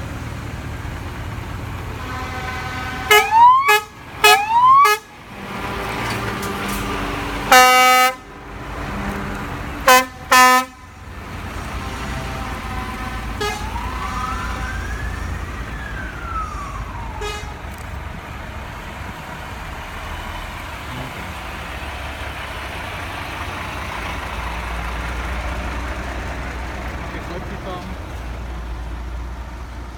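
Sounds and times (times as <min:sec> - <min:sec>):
truck engines idling: 0:00.0 - 0:29.9
truck air horn blasts: 0:01.9 - 0:05.1, 0:07.5 - 0:08.3, 0:09.8 - 0:10.9, 0:11.8 - 0:13.8, 0:17.2 - 0:17.6
siren-like tone rising and falling: 0:03.1 - 0:05.0, 0:12.6 - 0:17.7.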